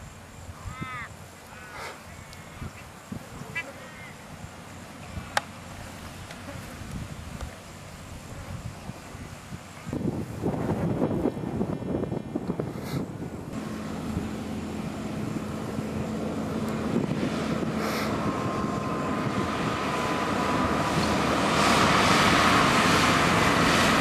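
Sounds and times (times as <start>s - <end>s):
steady whine: 0.0s - 24.0s
truck engine running: 13.1s - 24.0s.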